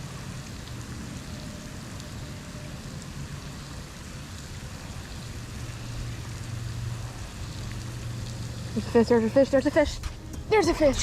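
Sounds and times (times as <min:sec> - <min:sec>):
rain falling: 0:00.0 - 0:11.0.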